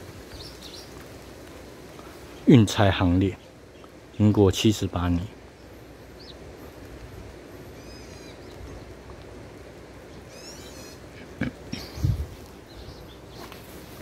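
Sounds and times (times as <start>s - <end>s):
outdoor background hiss: 0.0s - 14.0s
bird chirping calls: 0.3s - 1.0s, 5.5s - 6.6s, 7.7s - 8.9s, 10.1s - 11.1s, 11.7s - 13.7s.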